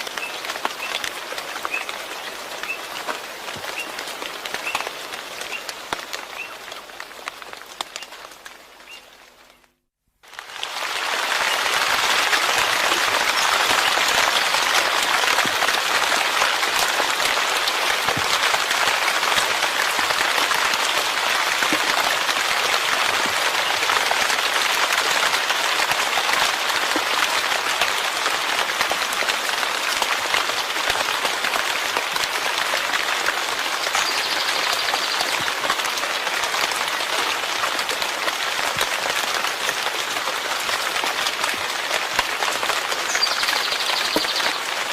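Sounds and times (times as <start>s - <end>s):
steady rain: 0.0s - 44.9s.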